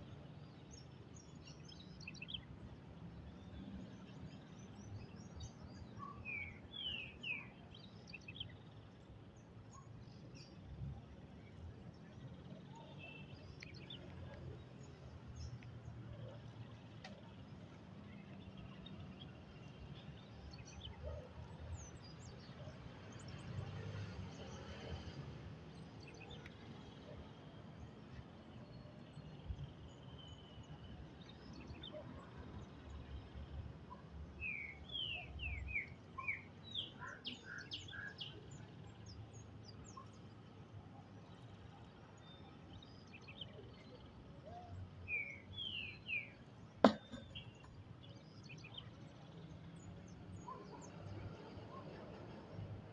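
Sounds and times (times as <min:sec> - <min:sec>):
wild birds chirping: 0:25.7 - 0:52.6.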